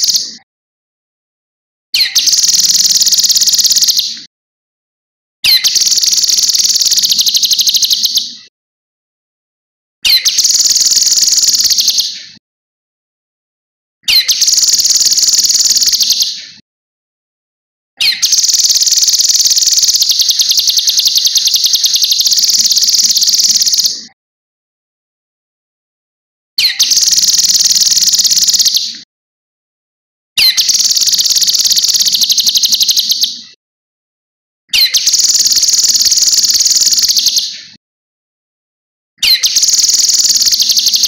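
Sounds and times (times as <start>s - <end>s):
songbird trilling: 2.0s - 4.1s, 5.5s - 8.3s, 10.1s - 12.2s, 14.1s - 16.4s, 18.0s - 24.0s, 26.6s - 28.9s, 30.4s - 33.4s, 34.8s - 37.5s, 39.2s - 41.0s.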